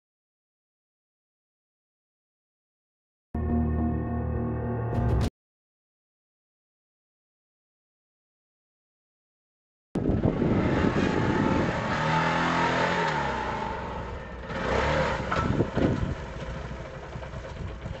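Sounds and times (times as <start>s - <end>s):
dirt bike engine revving: 10.0s - 16.1s.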